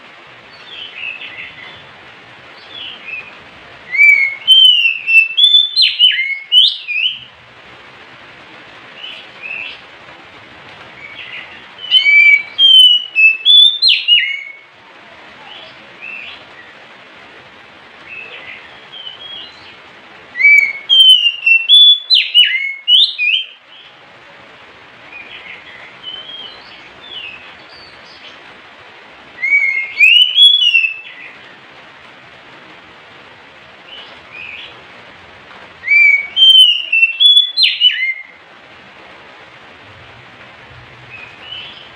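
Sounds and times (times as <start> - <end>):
bird singing whistled phrases: 3.9 - 7.3, 11.1 - 14.6, 18.6 - 19.7, 20.4 - 23.6, 29.4 - 31.4, 35.8 - 38.4.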